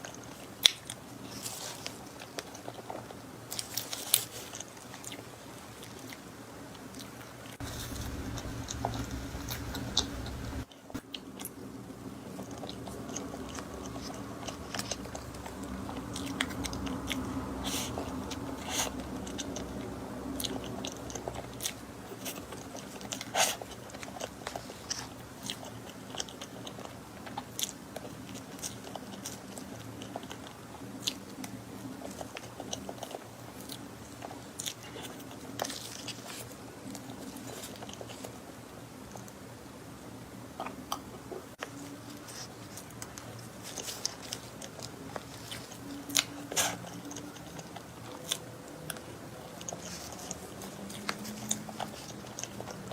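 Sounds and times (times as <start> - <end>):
person chewing cake: 0.0 - 39.5, 40.5 - 52.9
low hum: 7.6 - 10.7.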